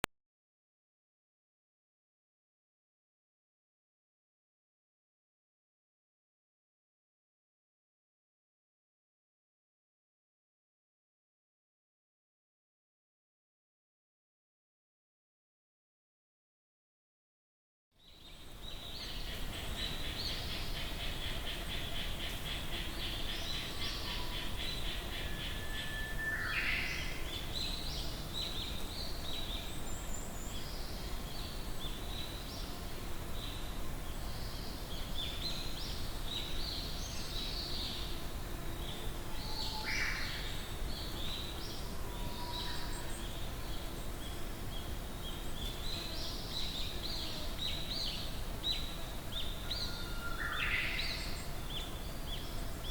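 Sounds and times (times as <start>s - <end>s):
forest birds chirping and singing: 18.0s - 52.9s.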